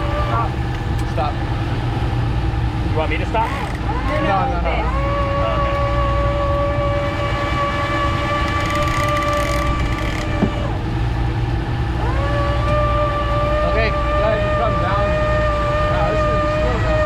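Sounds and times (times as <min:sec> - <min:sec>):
boat engine rumbling: 0:00.0 - 0:17.0
fishing reel drag buzzing: 0:03.3 - 0:10.8.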